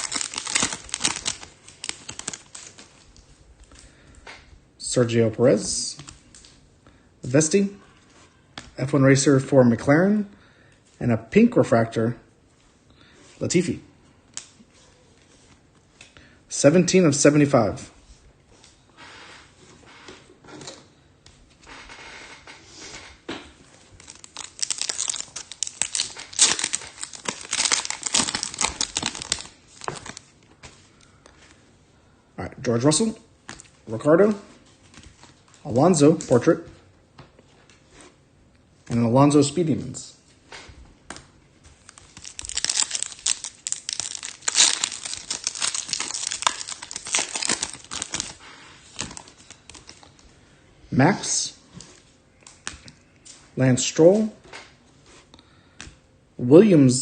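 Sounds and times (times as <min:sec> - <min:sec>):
card pack wrapper crinkling: 0:00.0 - 0:03.1, 0:24.0 - 0:30.3, 0:41.8 - 0:50.2.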